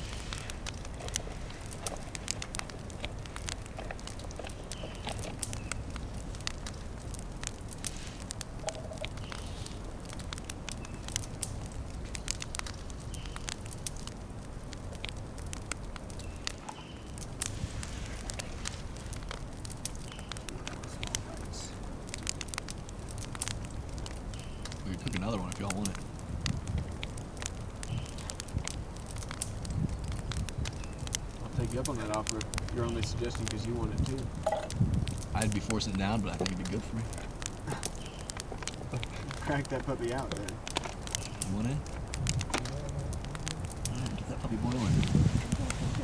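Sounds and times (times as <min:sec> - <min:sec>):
campfire crackling and popping: 0:00.0 - 0:46.0
low fire rumble: 0:00.0 - 0:46.0.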